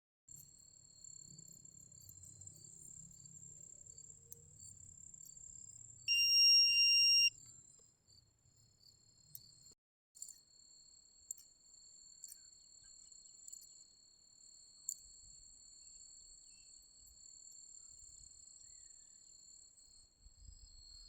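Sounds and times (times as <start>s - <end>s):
insects chirring: 1.4s - 7.3s
metal detector beep: 6.1s - 7.3s.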